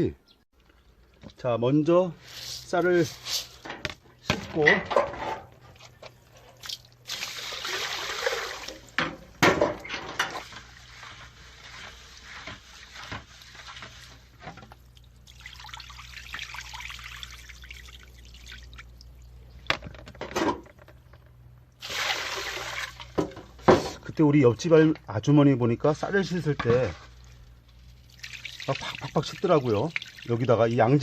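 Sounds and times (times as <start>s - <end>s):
water running into bowl of rice: 7.0s - 9.0s, 14.9s - 19.0s, 21.8s - 23.2s, 27.0s - 31.0s.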